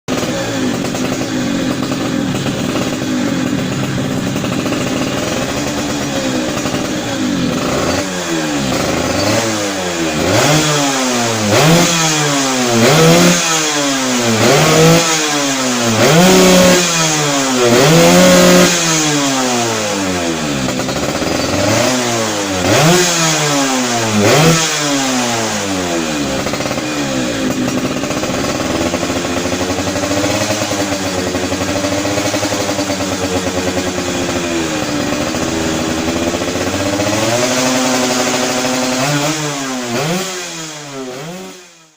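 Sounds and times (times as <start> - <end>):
moped engine revving: 0.0 - 41.9.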